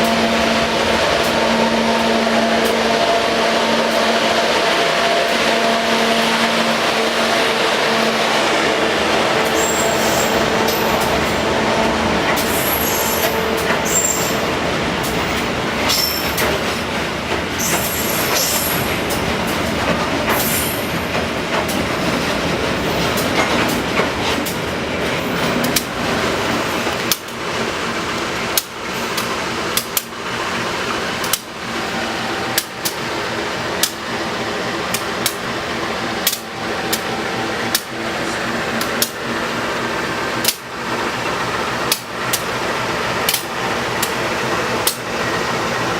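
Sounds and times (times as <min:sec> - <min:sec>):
train wheel squeals: 0:00.0 - 0:16.8, 0:17.5 - 0:19.2, 0:20.3 - 0:21.2
rail joint clacks: 0:00.0 - 0:45.9.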